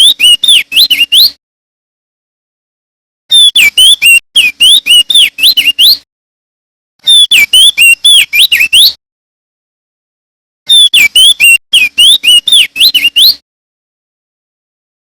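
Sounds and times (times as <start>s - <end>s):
bird singing whistled notes: 0.0s - 1.4s, 3.3s - 6.0s, 7.0s - 9.0s, 10.7s - 13.4s.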